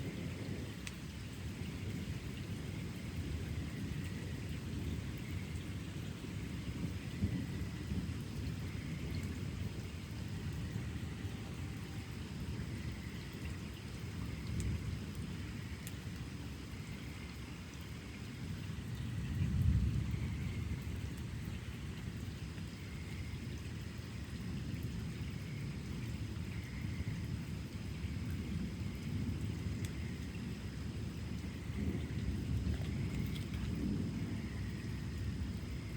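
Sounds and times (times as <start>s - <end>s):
thunder rumbling: 0.0s - 13.1s, 18.4s - 22.6s, 27.2s - 35.9s
steady rain: 0.0s - 35.9s.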